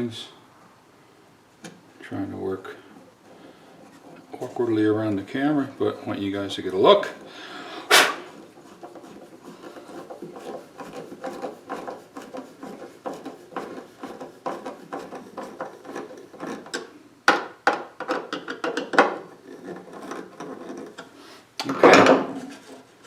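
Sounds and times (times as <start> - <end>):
screw driven into wood: 7.9 - 9.2.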